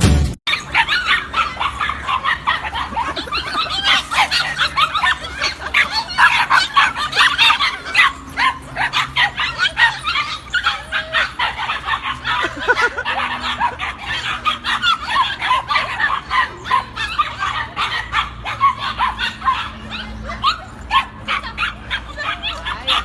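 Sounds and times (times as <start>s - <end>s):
dog whimpering: 0.5s - 17.6s
dog yapping and barking: 0.5s - 23.0s.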